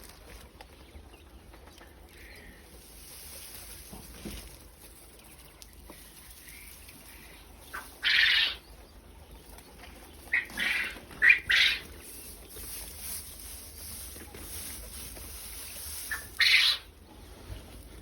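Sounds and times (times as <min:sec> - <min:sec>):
quail rasping calls: 0:06.4 - 0:17.1.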